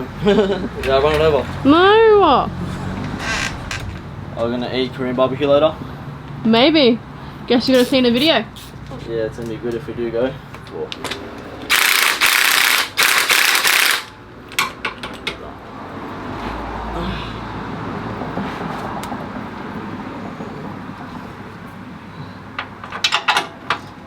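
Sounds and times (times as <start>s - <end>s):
hand ratchet clicking: 11.7s - 14.2s.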